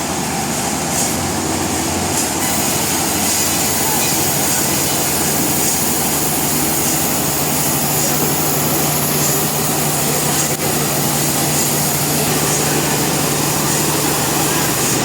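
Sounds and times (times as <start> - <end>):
sawmill machinery running: 0.0 - 15.0.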